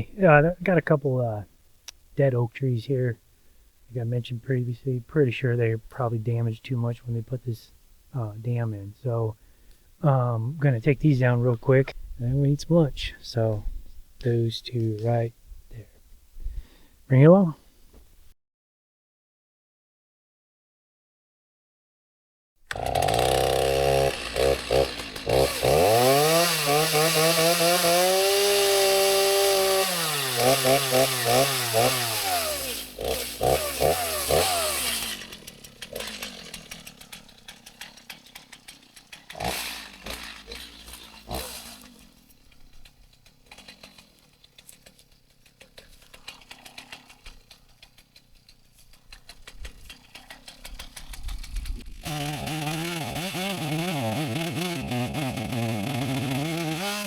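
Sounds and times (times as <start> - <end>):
chainsaw revving: 22.7 - 57.0.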